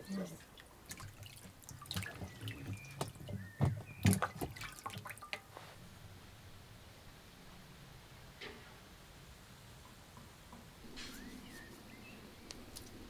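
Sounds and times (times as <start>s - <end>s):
liquid dripping: 0.4s - 5.5s.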